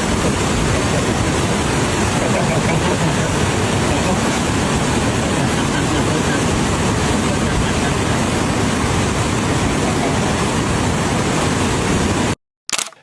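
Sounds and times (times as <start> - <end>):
steady loud rushing noise: 0.0 - 12.4.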